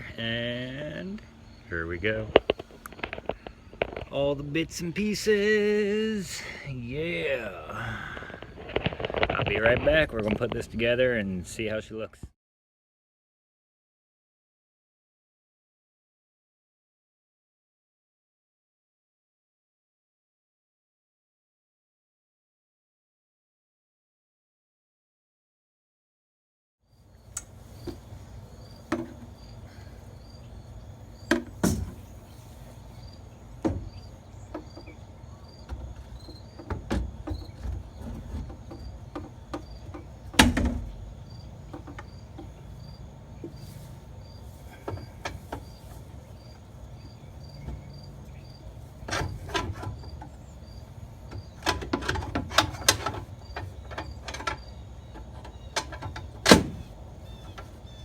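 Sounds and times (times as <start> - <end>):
cricket chirping: 0.6 - 4.1, 26.9 - 58.0.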